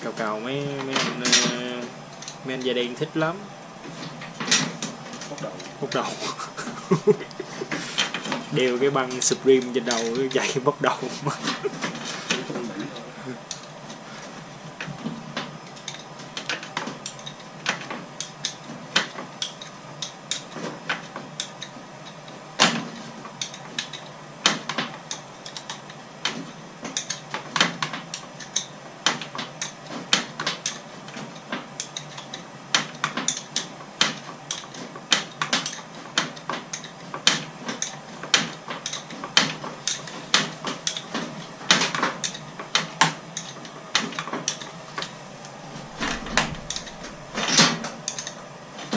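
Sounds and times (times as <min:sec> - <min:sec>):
hand tools clanking on metal: 0:00.0 - 0:02.7, 0:45.7 - 0:48.4.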